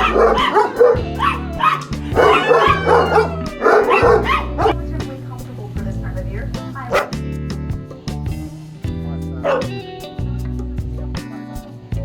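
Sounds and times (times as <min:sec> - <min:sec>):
dog barking: 0:00.0 - 0:04.8, 0:06.9 - 0:07.2, 0:09.4 - 0:09.8
background music: 0:00.0 - 0:12.0.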